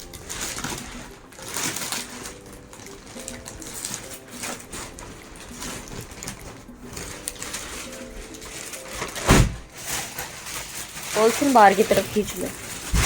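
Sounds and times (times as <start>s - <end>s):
plastic wrapping rustling and crinkling: 0.0s - 13.0s.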